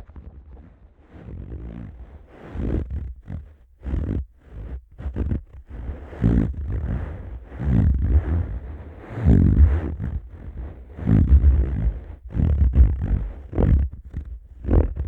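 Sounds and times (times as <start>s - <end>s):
palms rubbing together: 2.1s - 15.0s.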